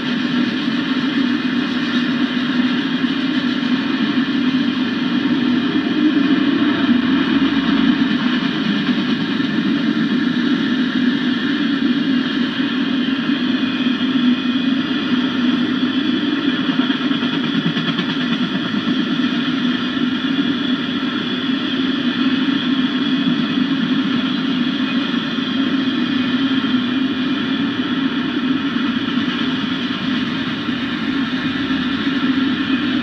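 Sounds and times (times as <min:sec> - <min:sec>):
steel wheels rumbling on rails: 0:00.0 - 0:33.0.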